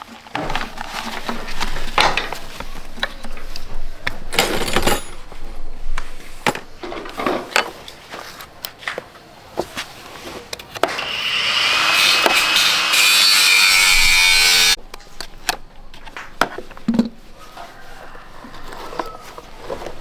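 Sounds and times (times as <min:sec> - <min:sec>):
power tool rasping hiss: 0:10.9 - 0:14.8.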